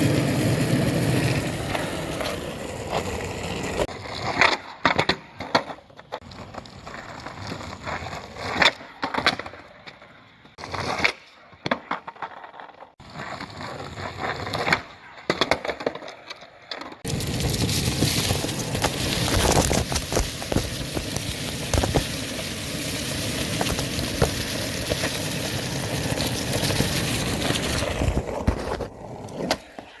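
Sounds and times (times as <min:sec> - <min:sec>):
skateboard wheels rolling: 0:00.0 - 0:30.0
skateboard clacks and knocks: 0:14.2 - 0:19.2.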